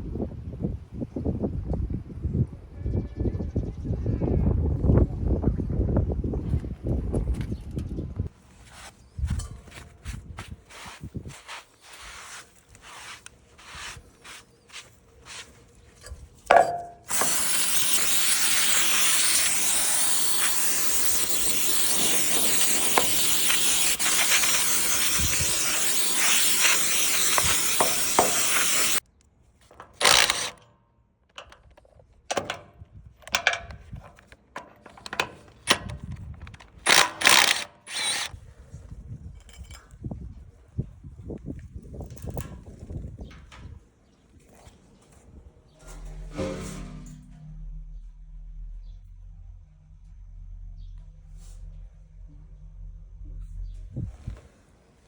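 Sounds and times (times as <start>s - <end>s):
loud steady hiss: 17.1s - 29.0s.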